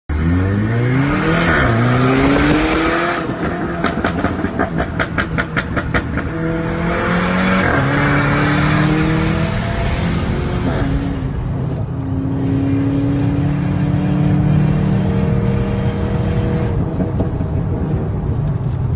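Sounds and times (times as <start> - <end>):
car engine revving: 0.1 - 18.9
sharp exhaust pops: 3.4 - 6.4.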